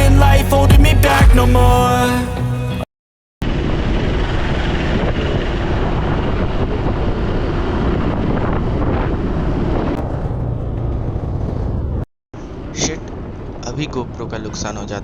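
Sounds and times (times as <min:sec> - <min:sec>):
wind rushing over microphone: 0:03.4 - 0:15.0.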